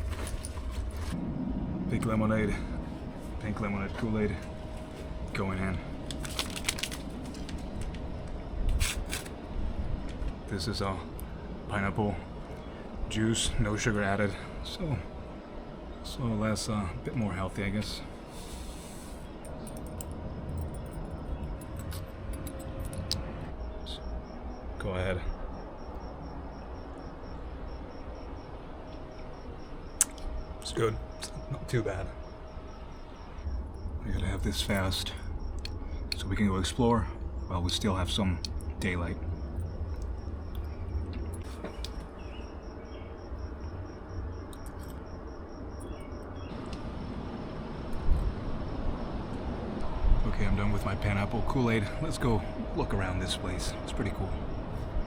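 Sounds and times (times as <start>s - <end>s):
low steady rumble: 0.0s - 55.0s
insect chirring: 3.4s - 55.0s.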